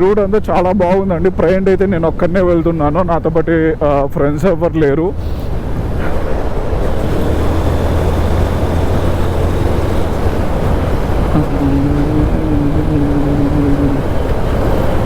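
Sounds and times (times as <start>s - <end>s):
wind rushing over microphone: 5.1s - 15.0s
motorcycle engine drone: 5.6s - 15.0s
steady higher tone: 11.3s - 15.0s.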